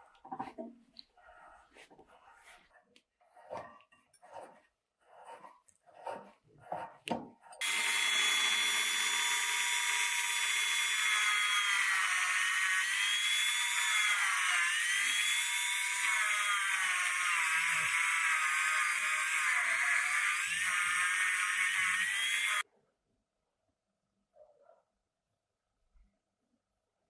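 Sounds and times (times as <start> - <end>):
electric power tool motor: 7.6 - 22.6.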